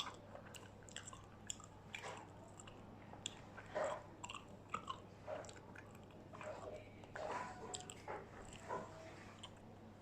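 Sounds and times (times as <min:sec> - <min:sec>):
person chewing crispy food: 0:00.0 - 0:09.7.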